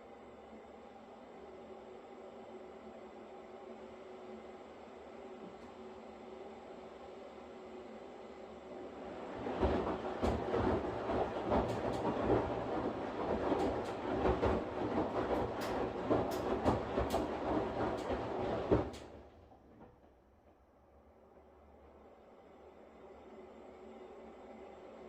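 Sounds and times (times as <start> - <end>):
washing machine humming: 3.0 - 22.0
clattering knocks and clicks: 9.4 - 20.6.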